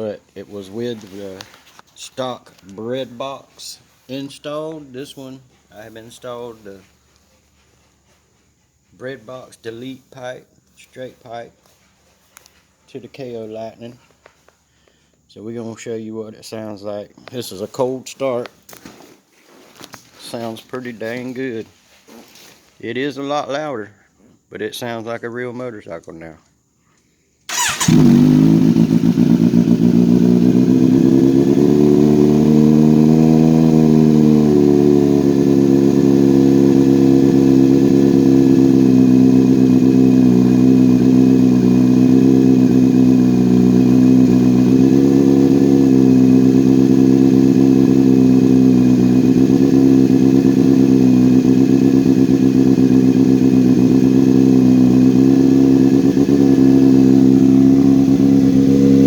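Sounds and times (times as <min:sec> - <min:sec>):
motorcycle engine idling: 0:27.5 - 0:59.0.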